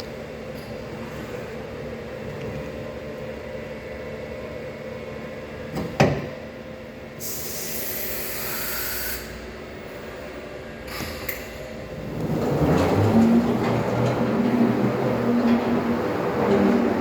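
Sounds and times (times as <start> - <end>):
hiss: 7.2 - 9.4.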